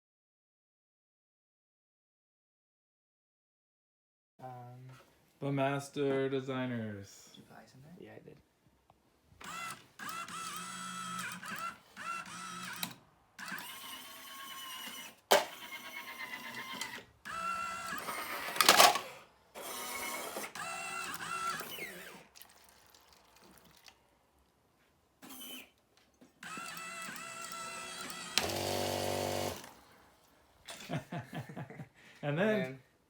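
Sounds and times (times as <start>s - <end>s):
small electric motor whining: 9.4s - 22.3s, 25.2s - 25.7s, 26.4s - 29.9s.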